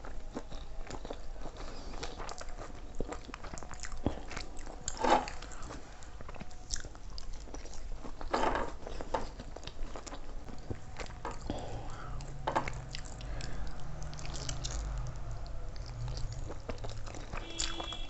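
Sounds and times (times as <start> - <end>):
person chewing crunchy food: 0.0 - 18.0.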